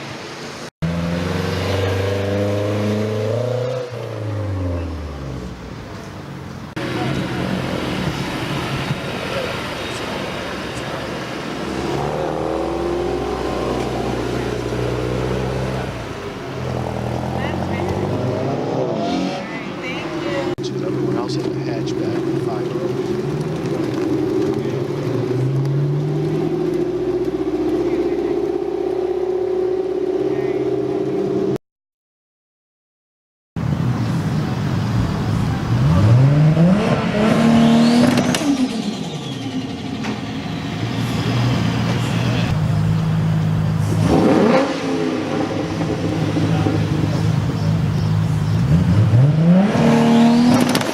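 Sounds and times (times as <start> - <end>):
car engine accelerating: 0.8 - 6.1, 6.7 - 31.6, 34.9 - 50.9
car engine running: 19.8 - 31.5.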